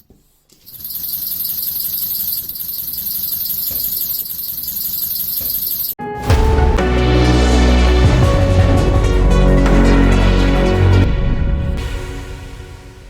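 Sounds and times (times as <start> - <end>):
rhythmic valve chatter: 0.7 - 6.0
background music: 6.0 - 13.0.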